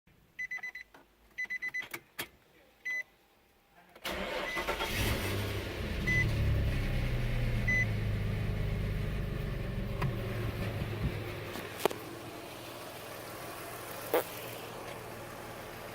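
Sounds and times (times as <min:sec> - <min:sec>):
car engine cranking and starting: 0:04.0 - 0:15.9
car engine idling: 0:04.1 - 0:15.9.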